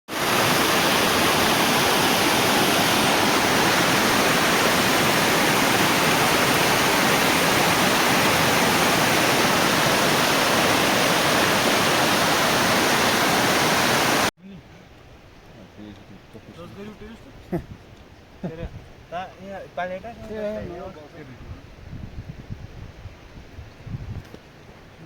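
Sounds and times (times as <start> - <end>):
water rushing: 0.1 - 14.3.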